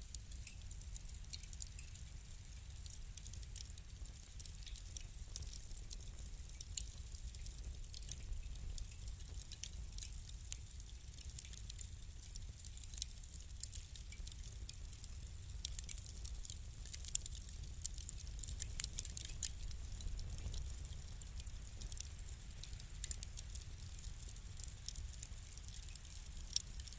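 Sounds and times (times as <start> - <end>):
wood fire crackling: 0.0 - 26.9.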